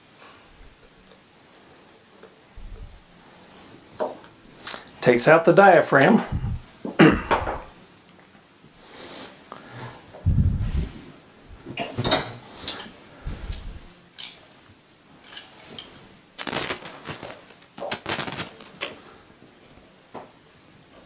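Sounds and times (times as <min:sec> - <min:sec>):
metal parts and tools clinking: 0:11.8 - 0:14.5, 0:15.2 - 0:16.6.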